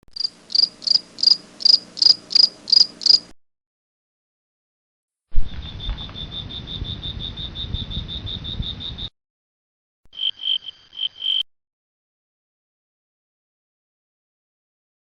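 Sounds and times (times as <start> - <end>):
cricket chirping: 0.1 - 3.3, 5.4 - 9.1, 10.1 - 11.4.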